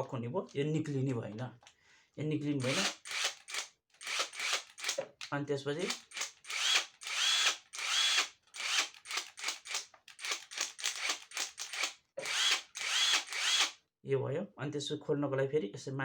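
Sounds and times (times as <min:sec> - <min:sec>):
impact driver motor whine: 0:02.6 - 0:05.0, 0:05.8 - 0:13.8.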